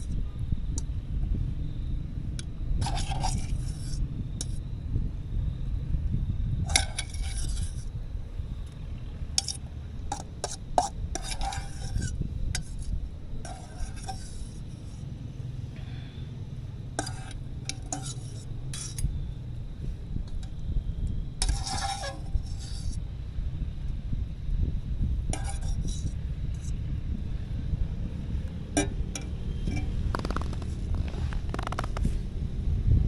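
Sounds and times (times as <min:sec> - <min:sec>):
metal utensil scraping cookware: 0:17.0 - 0:19.0, 0:21.4 - 0:23.0, 0:25.4 - 0:26.7.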